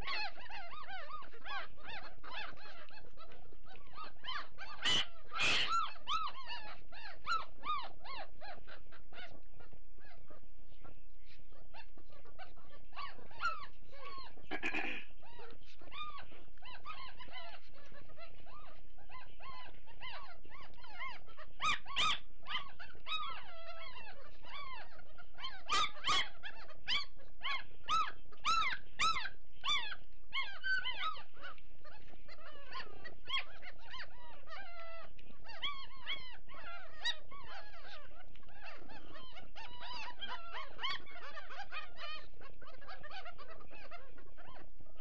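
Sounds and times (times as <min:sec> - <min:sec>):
puppies squealing and whining: 0:00.0 - 0:45.0
puppies yelping: 0:00.0 - 0:45.0.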